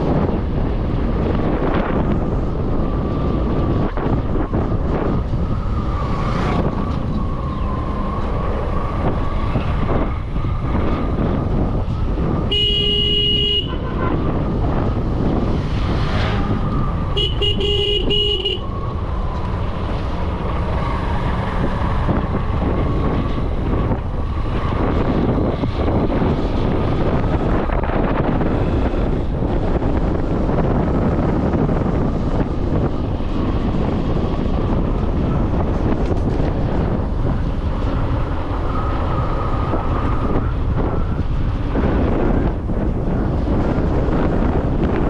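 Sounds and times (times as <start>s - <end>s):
motorcycle road noise: 0.0s - 45.0s
wind rushing over microphone: 0.0s - 45.0s
horn honks: 12.5s - 14.2s, 17.1s - 18.6s.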